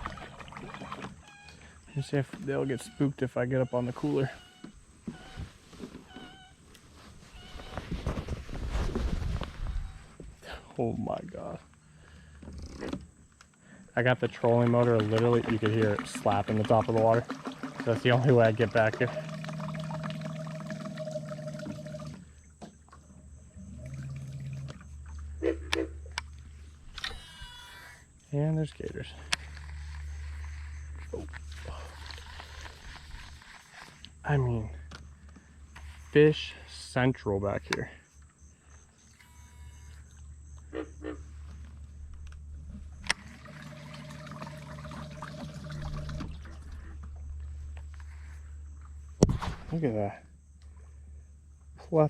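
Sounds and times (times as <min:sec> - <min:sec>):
propeller churning water: 0:00.0 - 0:02.0, 0:13.9 - 0:26.6, 0:43.0 - 0:47.4
electric motor hum: 0:26.2 - 0:28.2, 0:39.0 - 0:40.3.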